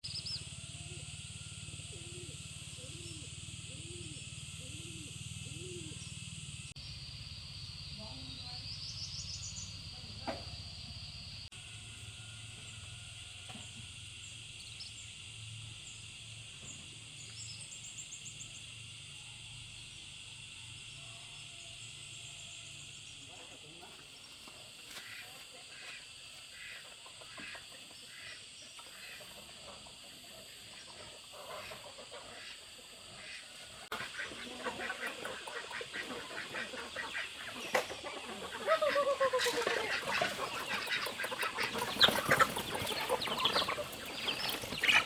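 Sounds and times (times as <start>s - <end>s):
insects chorus: 0.0s - 45.0s
low repeated animal calls: 0.2s - 8.6s, 17.8s - 45.0s
birds chirping: 1.8s - 11.0s, 26.6s - 45.0s.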